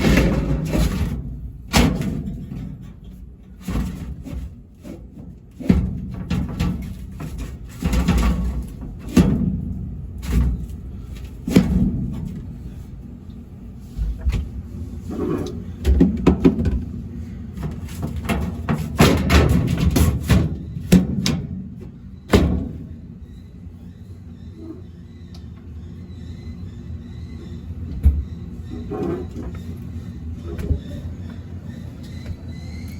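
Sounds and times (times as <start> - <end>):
parts knocking and clattering: 0.0 - 12.8, 15.3 - 23.0.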